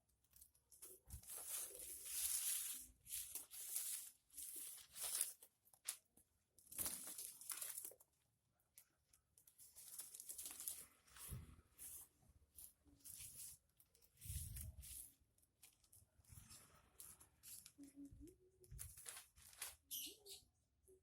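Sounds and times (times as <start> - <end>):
packaging rustling and tearing: 0.3 - 8.0, 9.6 - 12.0, 18.7 - 19.9.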